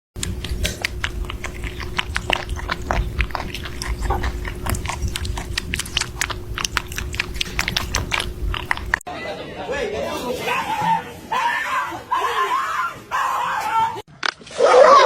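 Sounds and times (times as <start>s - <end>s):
faint steady hum: 0.2s - 9.1s
pet chewing crunchily: 0.2s - 9.1s.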